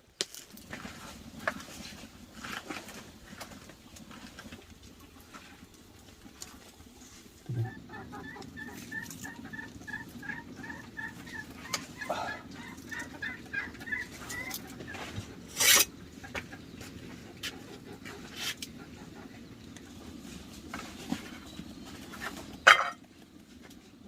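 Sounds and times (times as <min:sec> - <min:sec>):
chickens clucking: 0:00.8 - 0:24.0
low thump: 0:07.5 - 0:07.7.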